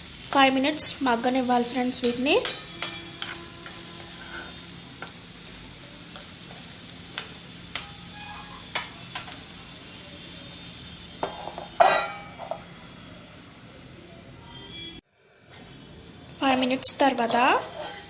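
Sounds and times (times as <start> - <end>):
vegetables sizzling in oil: 0.0 - 15.4, 16.0 - 18.0
steel spoon scraping pan: 0.3 - 9.5, 11.2 - 12.7, 16.4 - 18.0.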